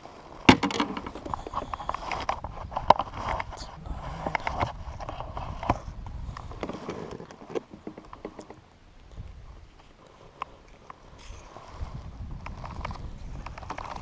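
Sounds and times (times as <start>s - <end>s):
clicks and knocks of gear: 12.4s - 14.0s.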